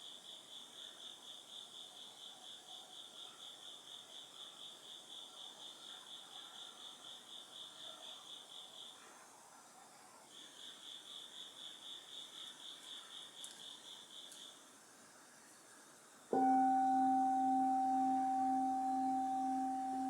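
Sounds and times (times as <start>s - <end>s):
crickets chirping: 0.0s - 9.0s, 10.3s - 14.7s, 16.3s - 20.0s
bowl bell ringing: 16.4s - 20.0s.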